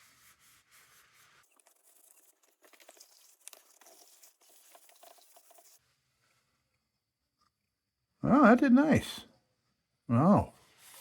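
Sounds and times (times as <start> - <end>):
paper towel rubbing plastic: 0.0 - 5.8.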